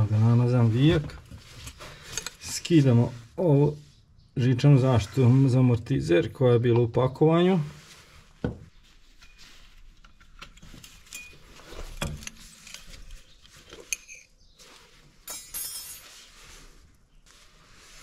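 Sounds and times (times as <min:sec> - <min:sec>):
light metallic clinks and knocks: 0:10.1 - 0:14.4, 0:15.2 - 0:16.2.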